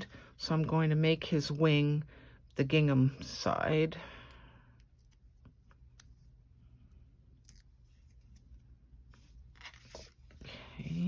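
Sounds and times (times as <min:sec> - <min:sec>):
hands handling paper pieces: 0:07.4 - 0:11.0.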